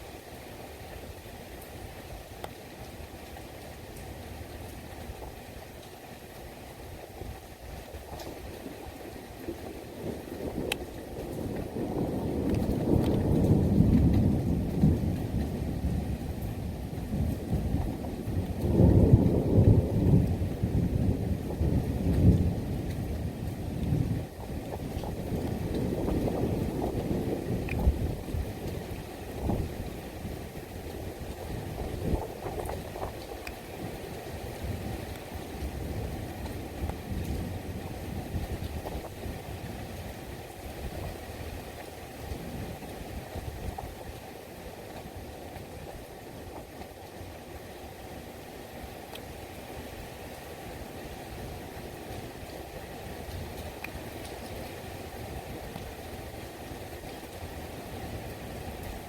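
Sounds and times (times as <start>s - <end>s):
rain falling: 0.0s - 59.0s
thunder rumbling: 9.5s - 39.4s.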